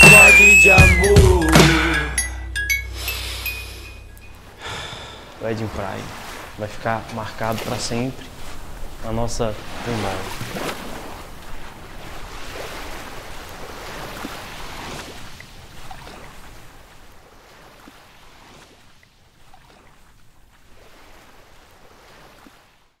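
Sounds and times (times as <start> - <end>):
ocean surf washing onto beach: 4.3 - 18.8.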